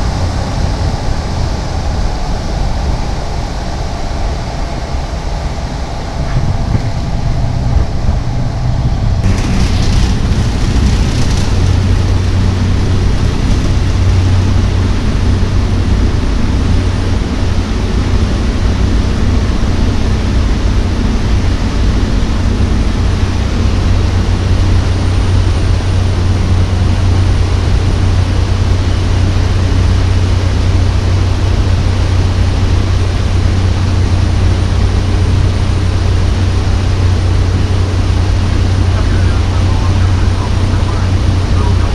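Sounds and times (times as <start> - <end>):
turboprop engine drone: 0.0 - 41.9
faint high whine: 38.2 - 41.9.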